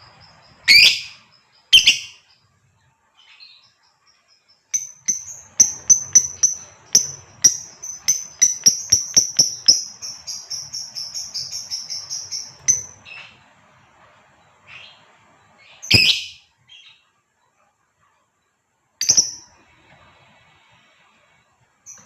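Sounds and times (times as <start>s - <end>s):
lovebird chirping and chattering: 0.1s - 2.3s, 4.7s - 13.4s, 15.6s - 17.0s, 19.0s - 19.6s
harsh bird call: 0.7s - 2.2s, 15.8s - 16.5s.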